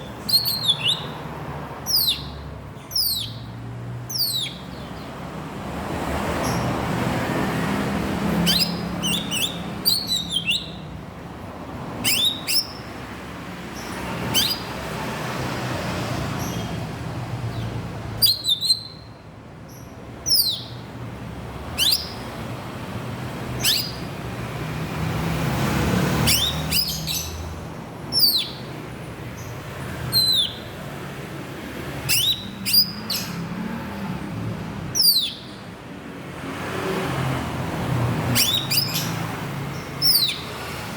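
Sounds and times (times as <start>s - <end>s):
bird giving sharp calls: 8.4s - 10.9s, 12.0s - 12.9s, 14.2s - 14.8s, 21.7s - 22.3s, 23.5s - 24.1s, 30.1s - 30.7s, 32.0s - 33.4s, 38.3s - 39.3s, 39.9s - 40.6s.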